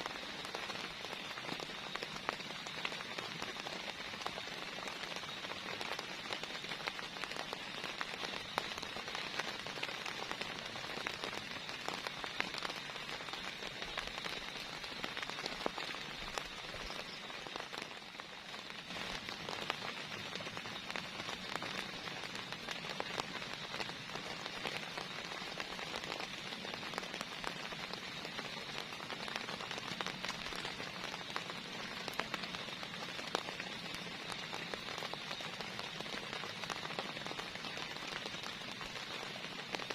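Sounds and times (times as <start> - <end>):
heavy rain hissing: 0.0 - 39.9
raindrops ticking on a surface: 0.0 - 39.9.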